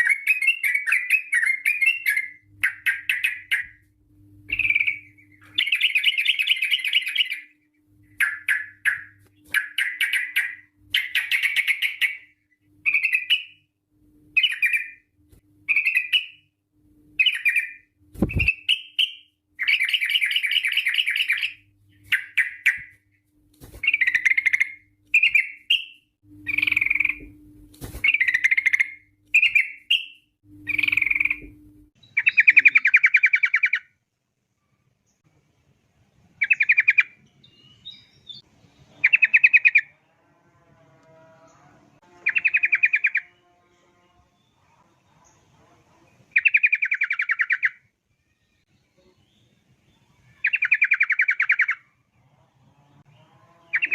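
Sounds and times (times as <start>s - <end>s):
bulbul singing chattering phrases: 32.1s - 33.8s.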